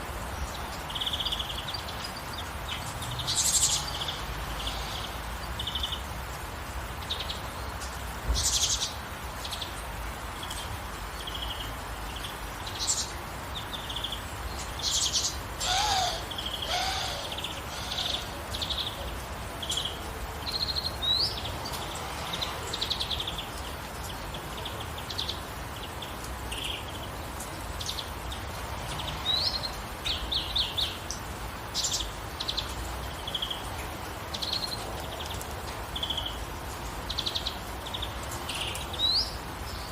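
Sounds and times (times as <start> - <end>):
gentle rain hiss: 0.0 - 39.9
songbirds chirping and trilling: 0.0 - 39.9
low gliding bird call: 15.6 - 18.6.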